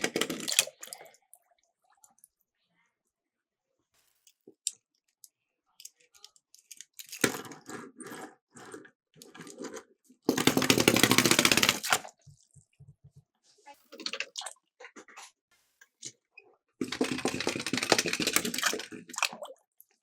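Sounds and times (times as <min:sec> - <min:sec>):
toy cars rattling down a slope: 0:16.8 - 0:18.7.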